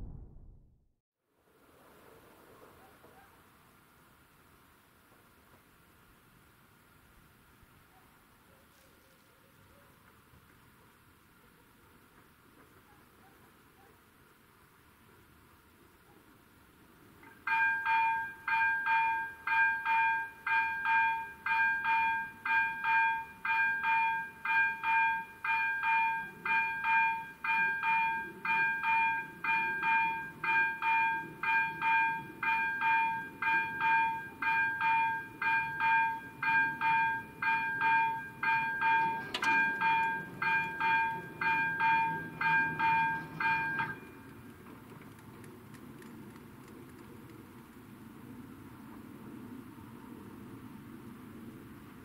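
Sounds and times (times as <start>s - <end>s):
low rumble: 0.0s - 0.9s
level crossing warning bell: 17.2s - 44.5s.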